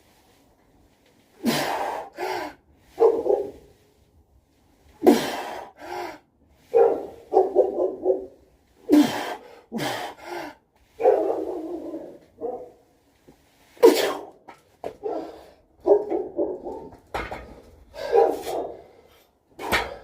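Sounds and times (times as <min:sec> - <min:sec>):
dog barking and yelping: 0:03.0 - 0:03.6, 0:06.7 - 0:08.4, 0:11.0 - 0:12.8, 0:15.0 - 0:16.9, 0:18.0 - 0:18.8.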